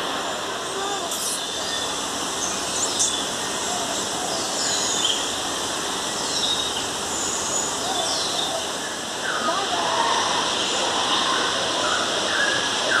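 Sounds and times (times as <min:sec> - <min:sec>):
running water: 0:00.0 - 0:13.0.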